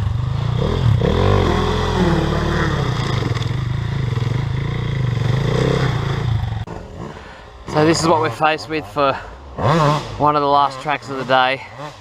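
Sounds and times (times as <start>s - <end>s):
dirt bike engine revving: 0.0s - 12.0s
bike clattering: 2.6s - 5.8s.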